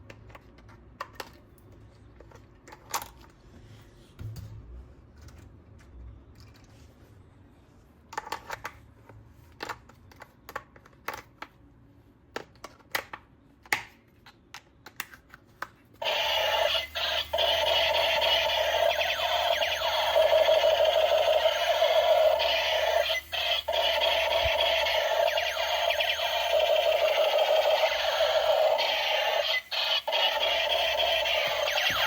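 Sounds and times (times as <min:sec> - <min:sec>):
warbling electronic toy sound: 0:16.0 - 0:32.0.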